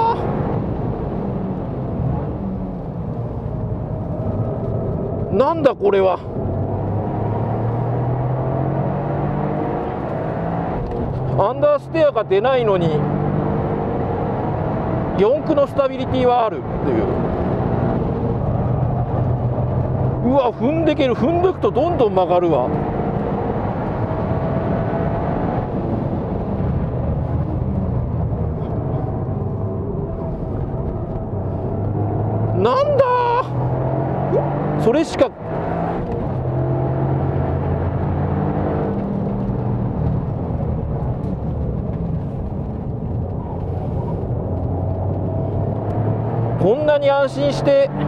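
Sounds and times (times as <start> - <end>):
car engine under throttle: 0.0 - 48.0
road and tyre noise: 0.0 - 48.0.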